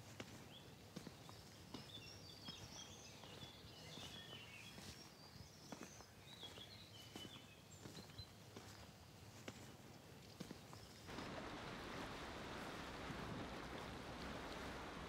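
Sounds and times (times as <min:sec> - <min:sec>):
birds chirping: 0:00.3 - 0:09.1
low hiss: 0:11.1 - 0:15.0.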